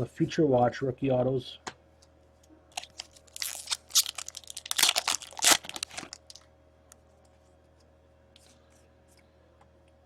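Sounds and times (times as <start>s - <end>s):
wrapper crinkling and tearing: 2.7s - 6.5s.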